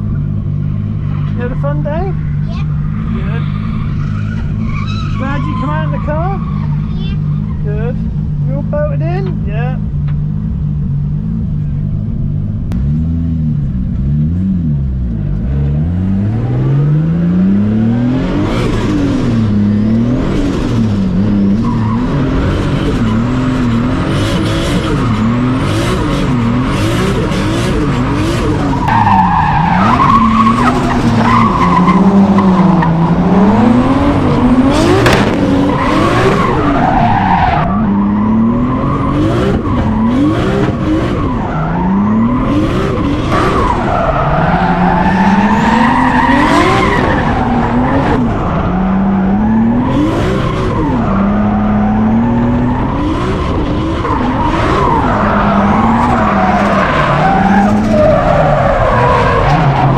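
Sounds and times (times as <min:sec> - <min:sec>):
car engine revving: 0:00.0 - 0:59.9
tyres squealing: 0:28.2 - 0:48.8.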